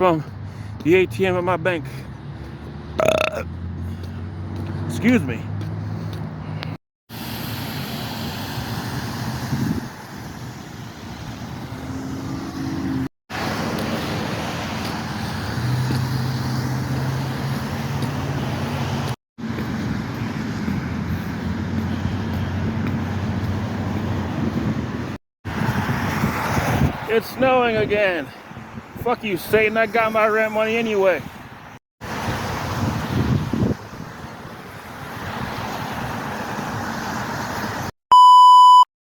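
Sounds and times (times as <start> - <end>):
passing cars rushing: 0.0 - 6.8, 7.7 - 28.9.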